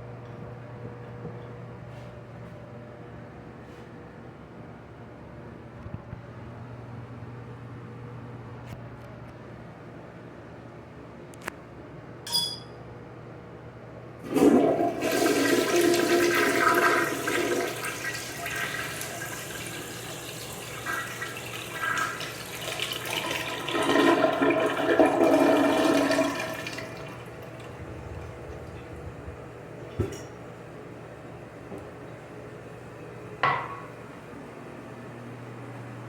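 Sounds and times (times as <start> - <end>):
toilet flush click: 14.2 - 27.8
toilet water rushing: 14.2 - 30.3.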